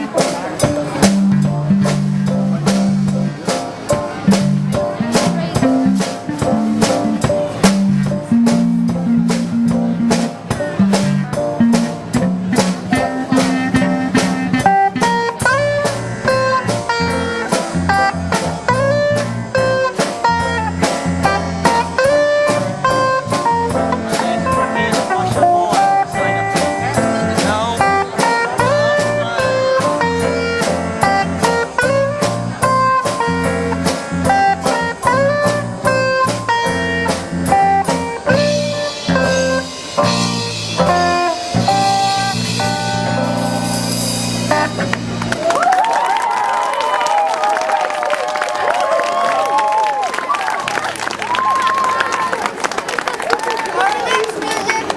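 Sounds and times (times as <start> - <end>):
steady drum beat: 0.0 - 45.7
bass line: 0.0 - 45.8
electric guitar solo: 10.0 - 47.3.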